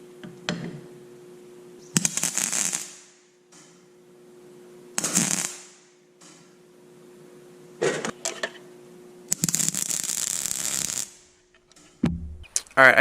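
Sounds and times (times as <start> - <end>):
faint steady hum: 0.0 - 13.0
electric welding arc crackling: 1.9 - 3.3, 5.0 - 6.0, 9.3 - 11.4.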